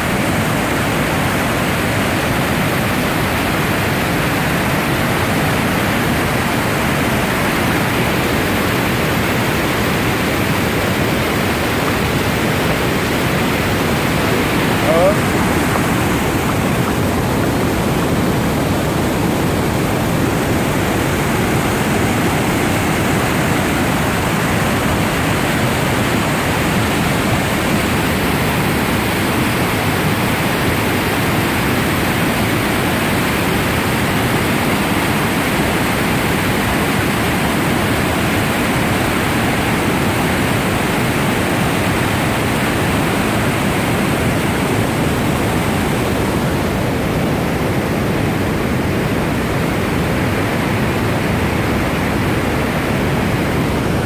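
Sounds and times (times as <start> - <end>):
water rushing at waterfall: 0.0 - 54.0.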